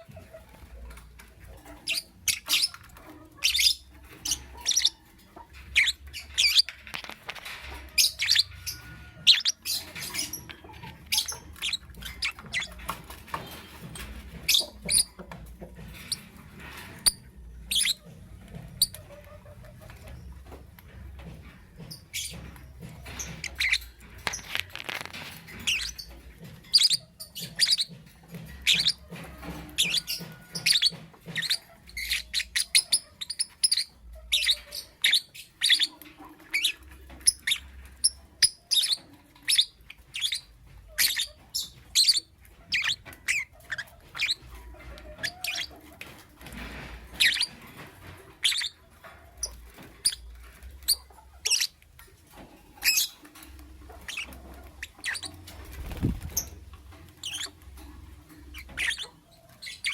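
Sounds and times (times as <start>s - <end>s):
lovebird chirping: 3.4s - 5.0s, 5.8s - 6.7s, 8.0s - 12.8s, 17.0s - 18.0s, 23.2s - 24.6s, 29.8s - 44.4s, 54.0s - 56.6s, 57.2s - 57.6s, 58.5s - 59.9s.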